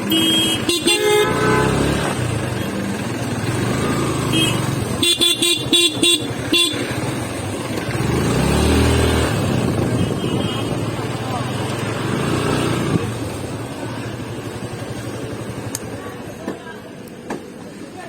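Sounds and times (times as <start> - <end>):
motor vehicle engines running: 0.0 - 18.0
vehicle horn short beeps: 9.9 - 10.8.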